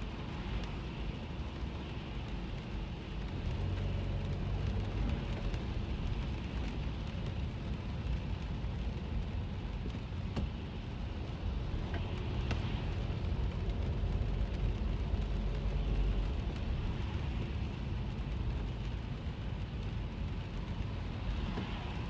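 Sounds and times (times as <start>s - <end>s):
car road and engine rumble: 0.0s - 22.0s
rain falling on car: 0.0s - 22.0s.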